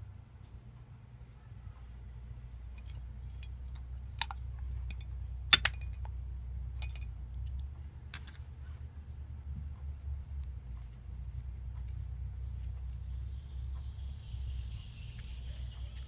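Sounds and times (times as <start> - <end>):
low steady hum: 0.0 - 16.0
small parts clicking and clinking: 2.7 - 6.1, 6.8 - 8.5.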